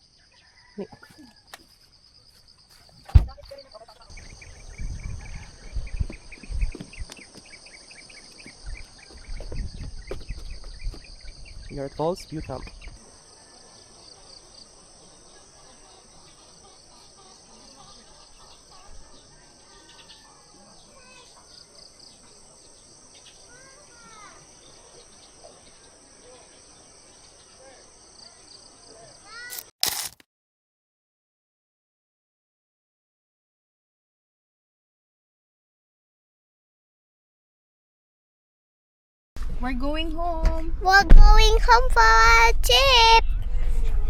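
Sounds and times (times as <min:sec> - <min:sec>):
crickets and insects chirping: 0:00.0 - 0:29.7.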